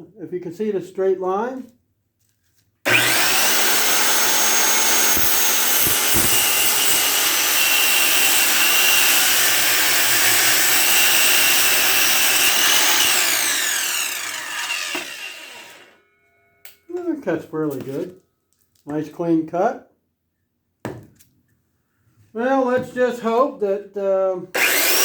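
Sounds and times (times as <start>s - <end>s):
circular saw cutting wood: 2.9s - 16.0s, 24.5s - 25.0s.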